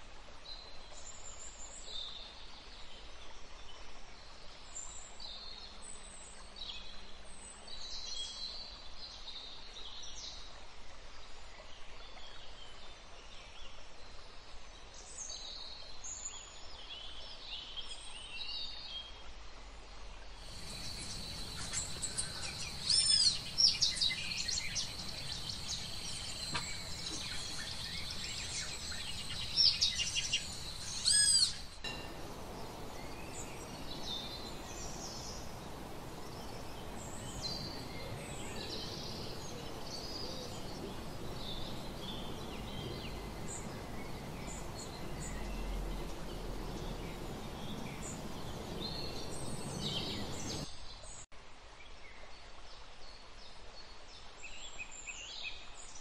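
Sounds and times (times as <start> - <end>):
steady hiss: 20.4 - 50.7
steady high whine: 20.5 - 50.6
wild birds calling: 20.5 - 50.7
short bird chirps: 20.6 - 50.6.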